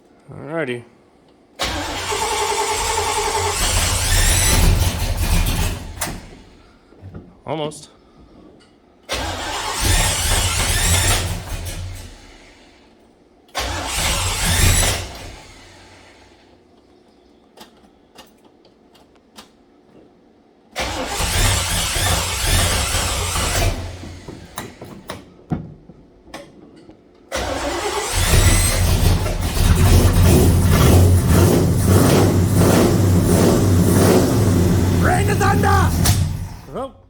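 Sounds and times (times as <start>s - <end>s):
car engine cranking and running: 1.6s - 6.7s, 9.1s - 12.6s, 13.6s - 16.3s, 20.8s - 25.2s, 27.3s - 36.8s.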